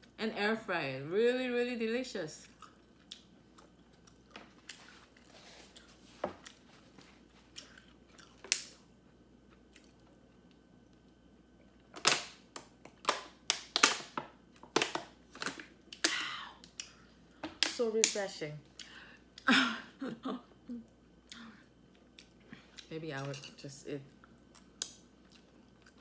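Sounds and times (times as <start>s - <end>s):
soft chewing clicks: 2.4s - 6.6s, 7.4s - 11.3s, 20.9s - 22.9s, 24.1s - 26.0s.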